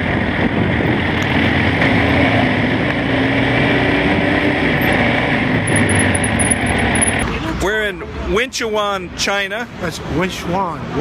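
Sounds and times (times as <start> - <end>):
wind rush: 0.0 - 7.2
motorcycle engine running: 4.6 - 7.2.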